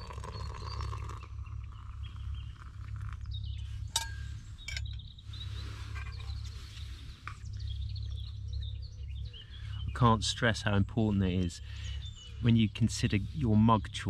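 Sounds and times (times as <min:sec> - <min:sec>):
birds chirping and singing: 0:00.0 - 0:14.0
steady low rumble: 0:00.6 - 0:14.0.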